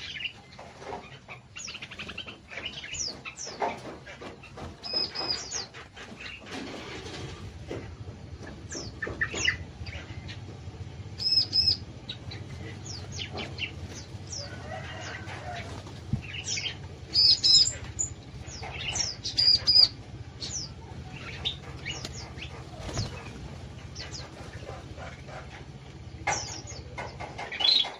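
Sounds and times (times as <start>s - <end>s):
songbirds chirping and whistling: 0.0s - 27.9s
steady low hum: 0.0s - 27.9s
loud ringing bird calls: 8.4s - 27.9s.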